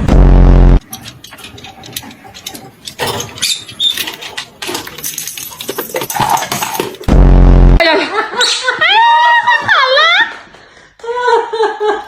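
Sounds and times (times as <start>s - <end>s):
parrot clicks and scratching: 0.8s - 7.1s.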